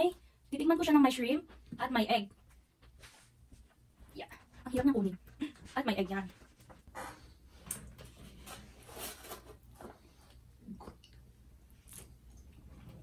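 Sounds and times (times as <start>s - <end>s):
person chewing softly: 9.9s - 13.0s.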